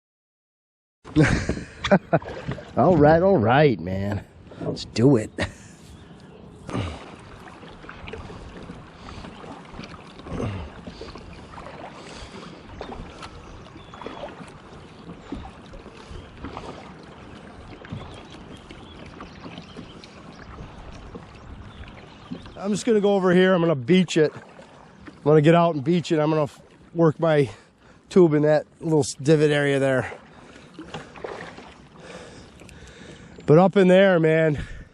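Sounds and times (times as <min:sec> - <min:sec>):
paddle strokes splashing water: 0:01.1 - 0:34.9
steady watery wash: 0:01.1 - 0:34.9.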